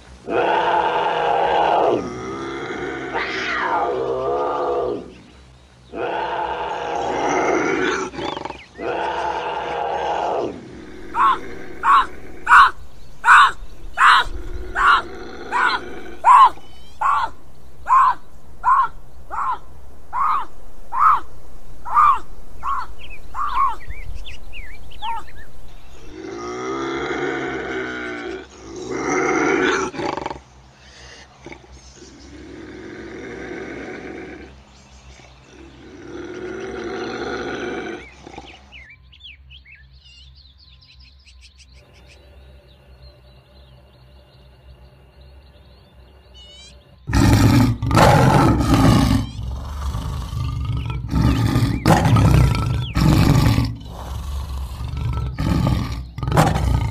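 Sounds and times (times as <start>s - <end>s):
lion roaring and growling: 0.2s - 5.3s, 5.9s - 30.5s, 31.4s - 38.8s, 47.0s - 56.9s
wild cat calls: 0.2s - 5.3s, 5.9s - 23.9s, 24.9s - 38.8s, 46.4s - 56.9s
bird chirps: 5.0s - 26.4s, 37.9s - 56.9s.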